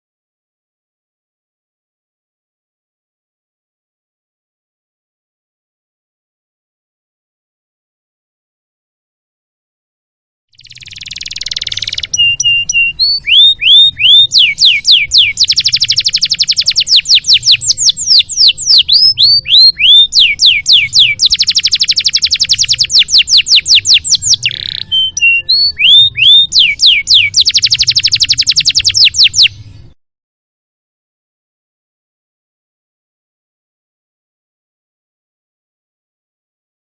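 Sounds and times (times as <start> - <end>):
canary singing trills: 10.6 - 30.0.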